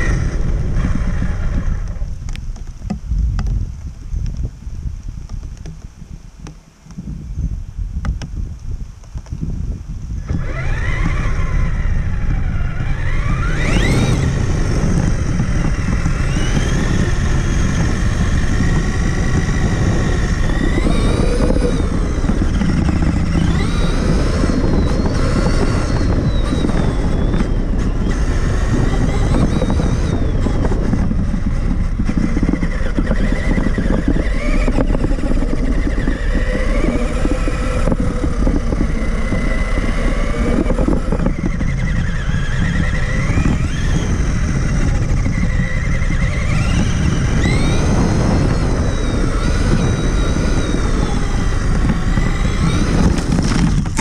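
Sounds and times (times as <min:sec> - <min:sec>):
electric motor and gearbox whine: 0:00.0 - 0:54.0
tyres and chassis rattling: 0:10.2 - 0:54.0.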